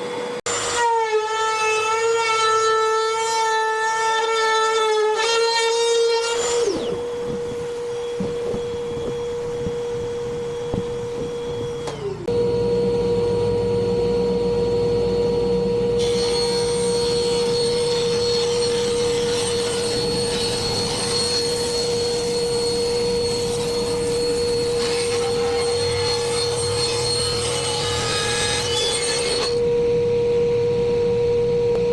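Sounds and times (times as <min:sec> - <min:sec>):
woodworking power tool running: 0:00.0 - 0:30.7
shop vacuum running: 0:00.0 - 0:31.9.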